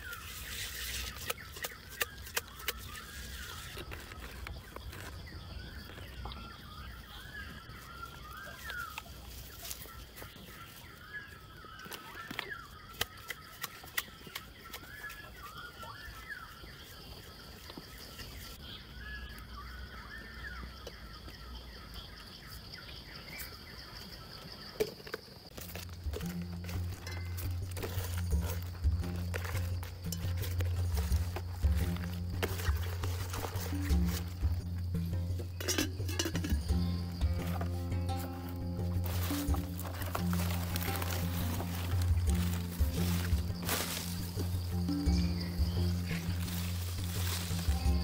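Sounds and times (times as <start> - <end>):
leaves rustling: 0.0 - 12.9, 25.4 - 48.0
birds calling: 0.0 - 48.0.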